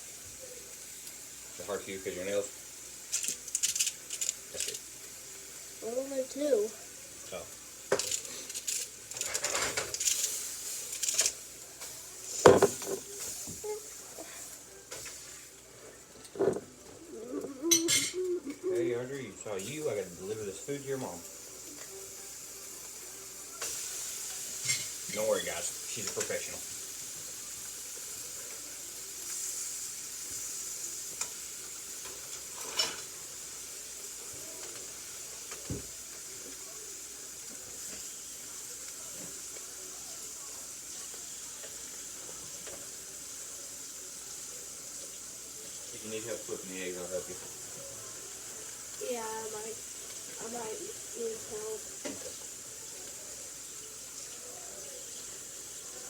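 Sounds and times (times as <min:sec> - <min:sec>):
eggs frying: 0:00.0 - 0:56.0
utensils knocking on frying pan: 0:12.4 - 0:13.1.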